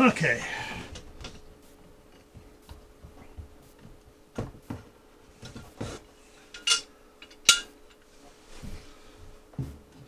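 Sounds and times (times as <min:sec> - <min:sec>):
metal tools and fittings clinking: 0:06.5 - 0:08.0.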